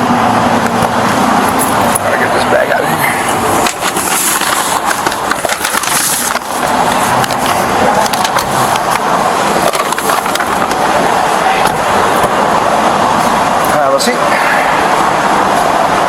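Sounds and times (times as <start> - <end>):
small wheels rolling on pavement: 0.6 - 12.5.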